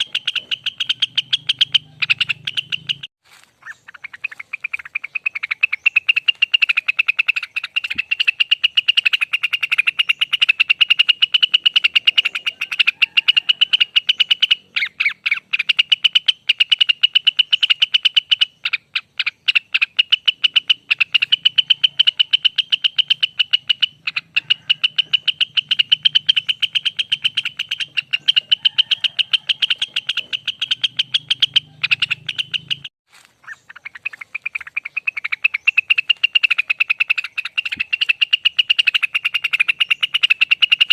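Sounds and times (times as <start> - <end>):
bird trilling song: 0.0 - 40.9.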